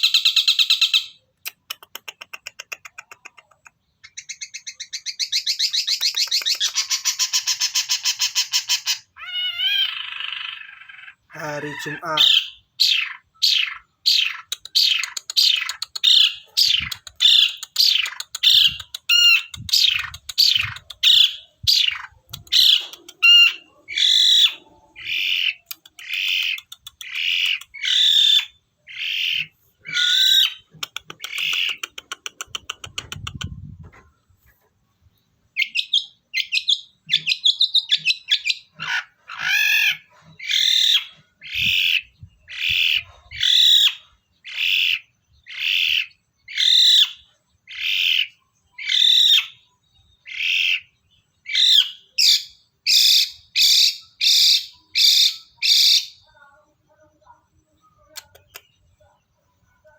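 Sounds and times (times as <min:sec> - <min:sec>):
shrike calling: 0:04.0 - 0:33.0.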